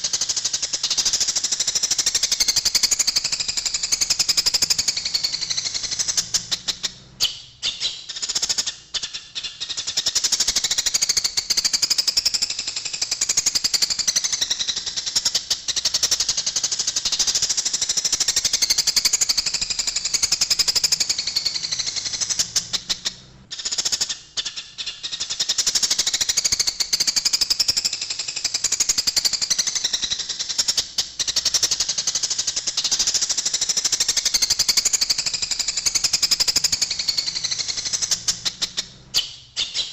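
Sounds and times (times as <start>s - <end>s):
sparrows chattering harshly: 0.0s - 12.0s, 30.7s - 39.9s.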